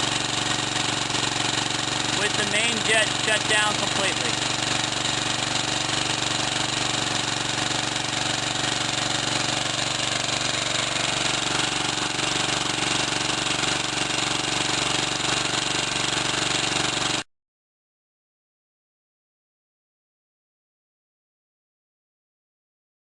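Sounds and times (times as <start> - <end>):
small engine running: 0.0 - 17.3.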